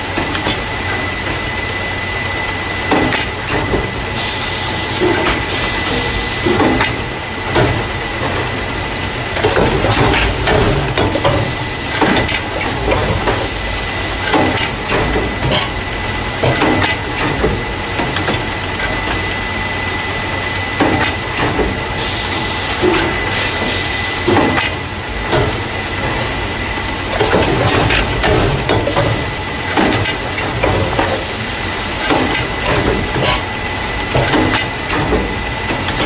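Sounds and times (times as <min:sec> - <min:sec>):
clacks and knocks of moving parts: 0:00.0 - 0:01.4, 0:02.8 - 0:04.4, 0:05.0 - 0:08.7, 0:09.3 - 0:13.6, 0:14.2 - 0:19.4, 0:20.5 - 0:36.0.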